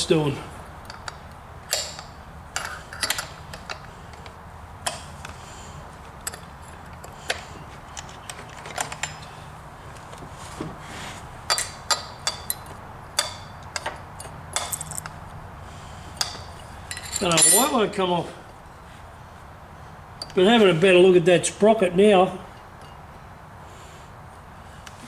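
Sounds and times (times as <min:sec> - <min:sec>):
metallic clicks of hand tools: 0:00.8 - 0:05.0.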